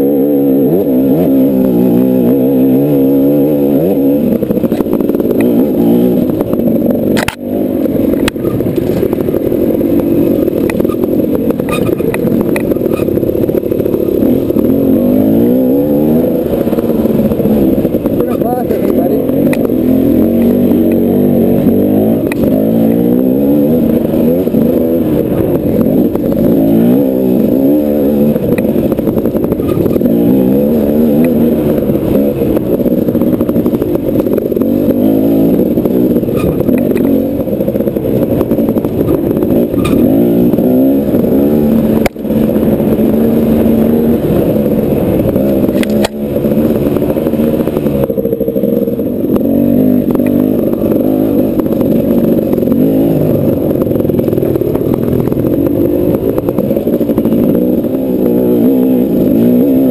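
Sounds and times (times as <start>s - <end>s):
dirt bike engine revving: 0.0s - 59.9s
knocks and clatter: 28.4s - 40.9s.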